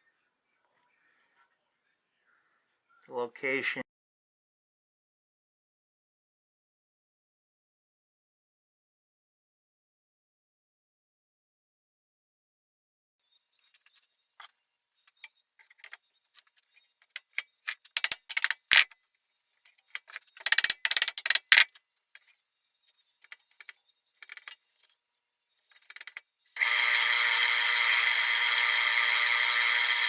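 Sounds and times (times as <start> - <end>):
tools clicking and clattering: 15.6 - 19.0, 19.7 - 22.3, 23.2 - 25.0, 25.7 - 30.0
small power tool motor running: 25.8 - 30.0.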